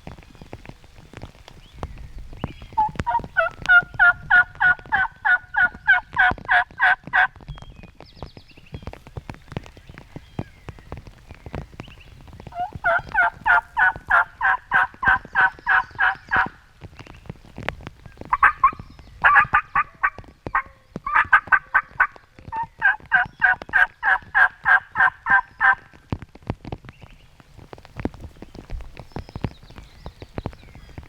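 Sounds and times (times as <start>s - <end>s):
turkey yelping: 2.8s - 7.3s, 12.5s - 16.6s, 18.3s - 25.8s.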